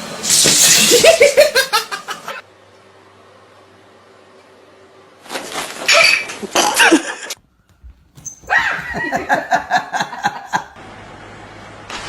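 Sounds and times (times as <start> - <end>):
dog barking and yapping: 8.2 - 9.4.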